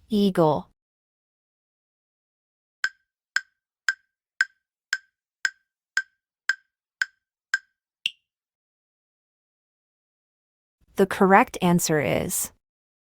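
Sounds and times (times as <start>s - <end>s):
timer ticking: 2.8s - 8.2s.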